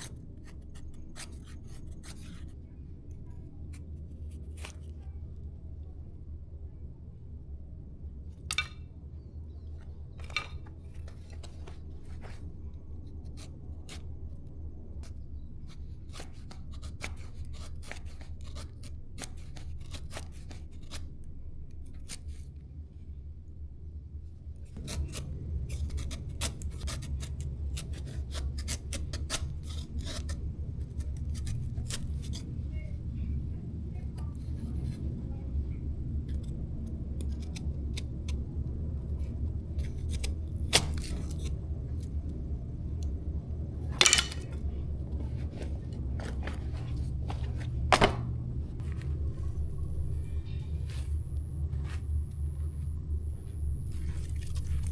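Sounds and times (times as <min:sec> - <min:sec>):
low steady rumble: 0:00.0 - 0:54.9
blade striking firewood: 0:08.5 - 0:08.8, 0:44.0 - 0:44.6, 0:46.2 - 0:48.4
wood cracking and scraping: 0:08.5 - 0:08.8, 0:44.0 - 0:44.6.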